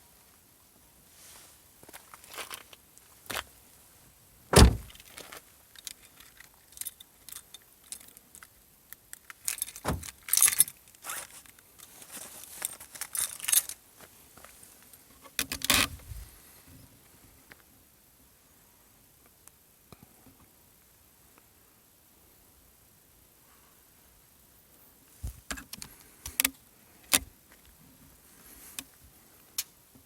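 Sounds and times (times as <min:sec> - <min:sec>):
loud thump: 0:04.5 - 0:05.0.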